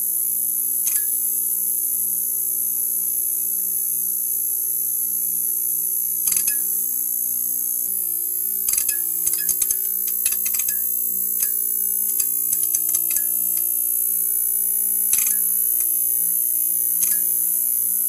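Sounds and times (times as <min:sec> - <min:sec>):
neon sign electrical hum: 0:00.0 - 0:18.0.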